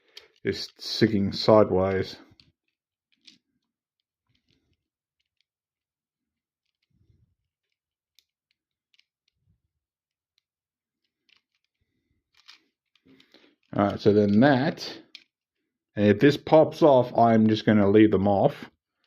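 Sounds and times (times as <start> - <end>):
plastic building bricks clicking: 0.1 - 5.6, 6.3 - 15.4.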